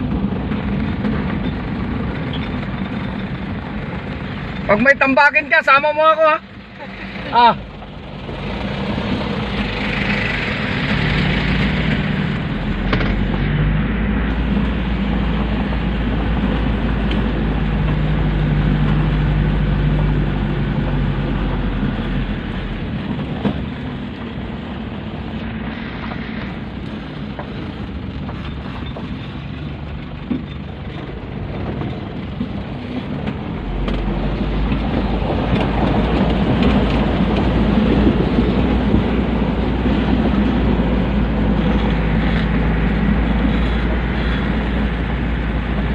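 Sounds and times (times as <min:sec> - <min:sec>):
truck engine droning: 0:00.0 - 0:45.9.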